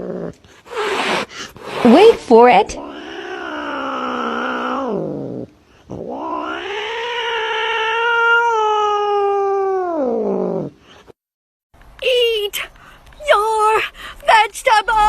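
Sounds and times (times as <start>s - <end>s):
cat yowling: 2.8s - 5.2s, 6.0s - 10.2s.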